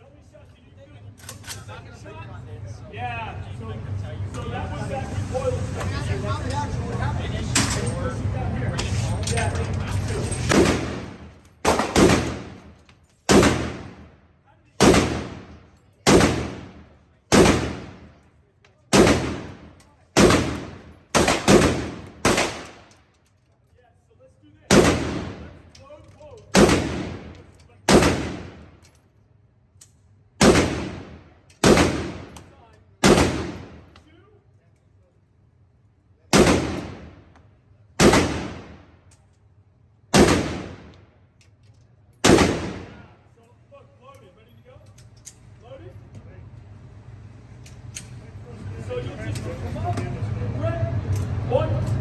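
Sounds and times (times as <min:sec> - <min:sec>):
pistol shots with ringing echo: 0:10.4 - 0:14.1, 0:14.8 - 0:18.2, 0:18.9 - 0:22.9, 0:24.7 - 0:25.6, 0:26.5 - 0:28.8, 0:30.4 - 0:32.4, 0:33.0 - 0:33.9, 0:36.3 - 0:37.3, 0:38.0 - 0:39.0, 0:40.1 - 0:41.0, 0:42.2 - 0:43.1.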